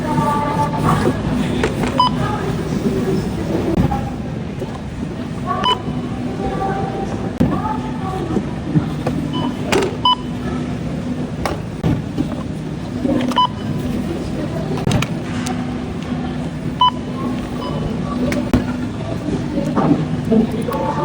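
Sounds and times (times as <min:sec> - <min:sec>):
checkout scanner beeps: 0:00.0 - 0:21.0
steady low hum: 0:00.0 - 0:21.0
scattered clicks and knocks: 0:08.8 - 0:10.2, 0:14.8 - 0:16.2.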